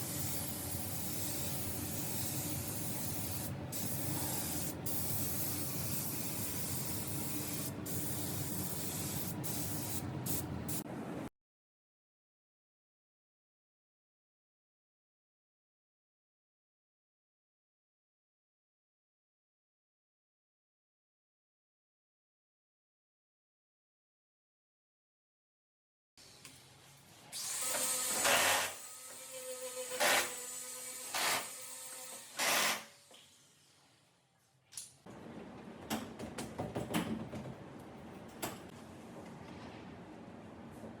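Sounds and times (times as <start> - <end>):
paint spray gun spraying: 0.0 - 10.8.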